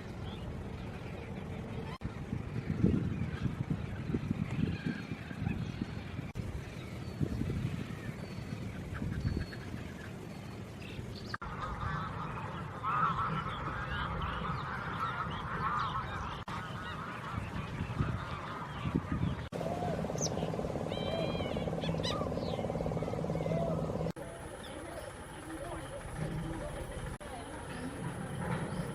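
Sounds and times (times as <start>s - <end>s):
low steady hum: 0.0s - 28.9s
waterfowl honking: 11.4s - 28.9s.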